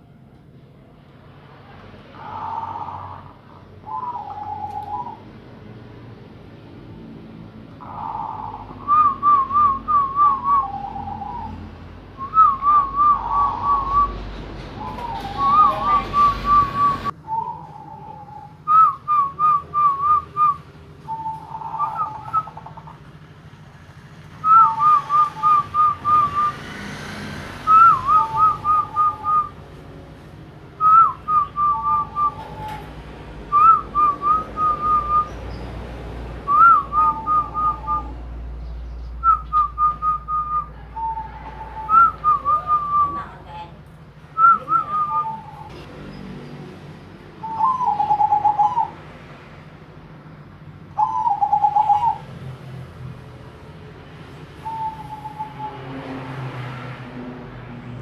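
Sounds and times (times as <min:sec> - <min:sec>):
doves cooing: 0:02.1 - 0:05.3, 0:07.7 - 0:23.3, 0:39.2 - 0:43.5, 0:47.4 - 0:49.0, 0:51.0 - 0:52.3.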